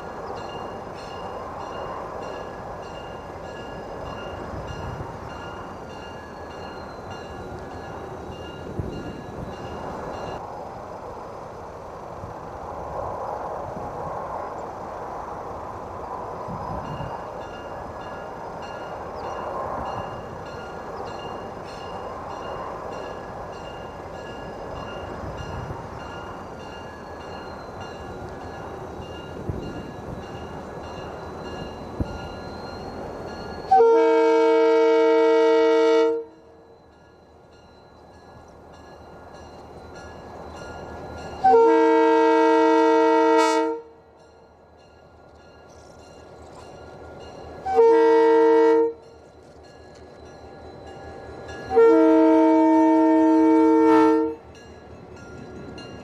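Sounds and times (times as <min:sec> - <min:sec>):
locomotive air horn blasts: 0:33.7 - 0:36.6, 0:41.4 - 0:44.0, 0:47.6 - 0:49.0, 0:51.7 - 0:54.4.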